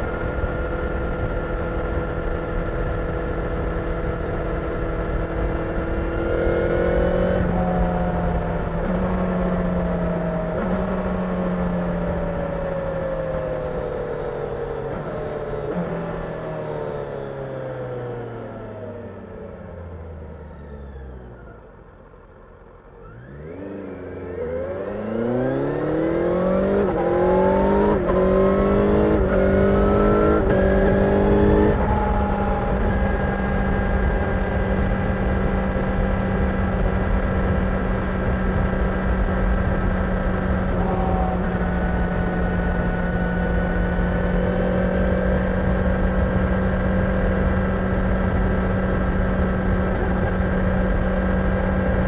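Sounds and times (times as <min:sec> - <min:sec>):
motorcycle engine accelerating: 0:00.0 - 0:52.0
rush of wind noise: 0:25.0 - 0:52.0.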